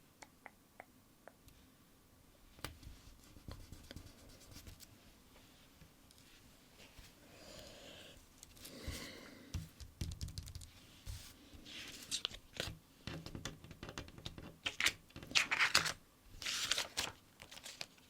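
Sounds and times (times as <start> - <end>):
fingertips tapping paper: 8.4 - 11.3.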